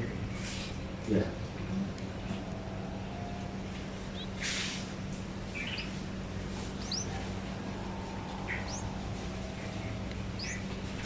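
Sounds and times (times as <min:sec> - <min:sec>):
steady low hum: 0:00.0 - 0:11.0
small bird chirping: 0:02.0 - 0:11.0
hissing rustle: 0:03.5 - 0:11.0.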